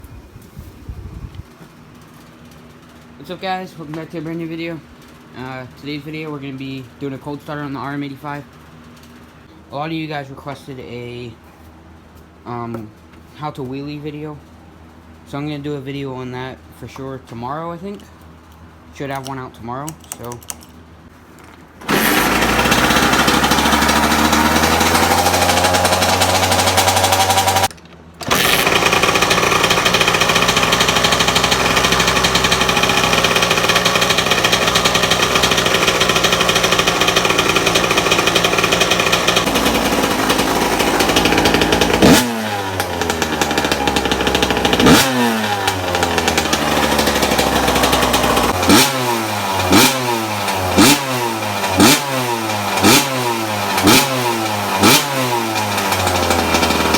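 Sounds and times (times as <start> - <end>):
engine throttle blips: 21.8 - 56.9
motocross engine running: 21.8 - 56.9.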